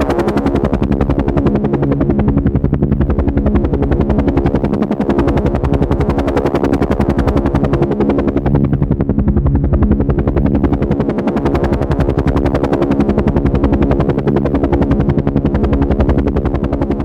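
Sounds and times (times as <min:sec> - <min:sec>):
helicopter engine hum: 0:00.0 - 0:17.0
helicopter rotor beating: 0:00.0 - 0:17.0.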